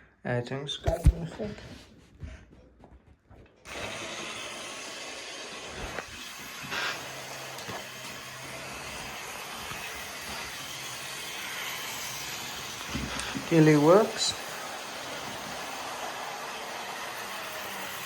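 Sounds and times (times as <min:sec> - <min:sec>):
model train motor whirring: 0:03.7 - 0:18.0.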